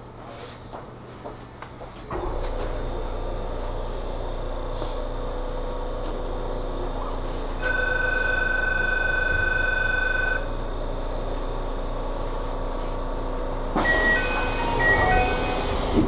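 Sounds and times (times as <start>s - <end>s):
electronic warning tone: 7.6s - 10.5s, 13.8s - 16.0s.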